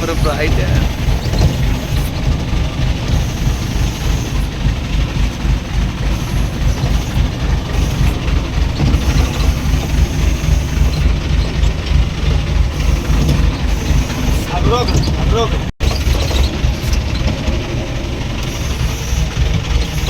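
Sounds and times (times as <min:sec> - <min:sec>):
crane engine running under load: 0:00.0 - 0:20.0.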